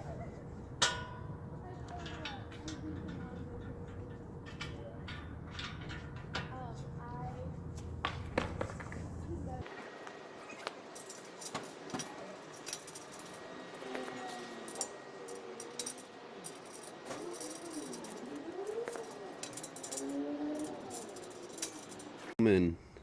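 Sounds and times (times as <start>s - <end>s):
metal hardware clinking: 0.0s - 9.6s, 10.4s - 22.4s
faint wavering tones: 10.3s - 22.3s.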